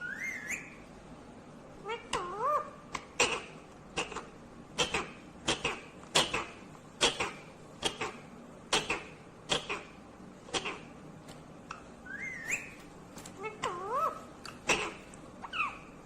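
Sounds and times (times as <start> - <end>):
parakeet sharp calls: 1.8 - 10.9, 13.6 - 16.0.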